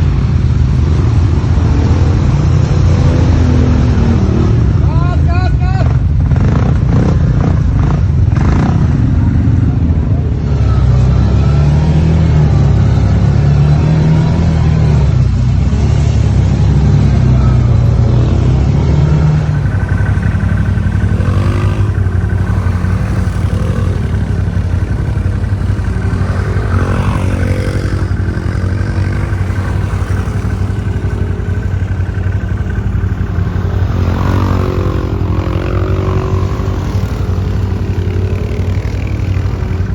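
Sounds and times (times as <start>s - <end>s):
quad bike engines revving: 0.0s - 39.9s.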